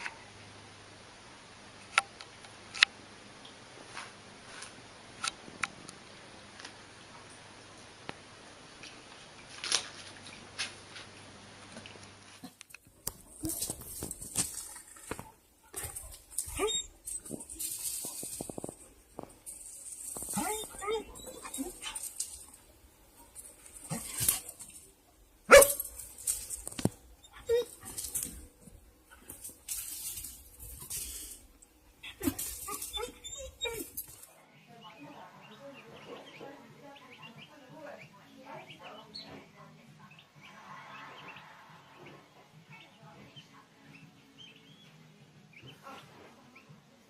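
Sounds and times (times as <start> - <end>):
dog barking: 25.5 - 26.0.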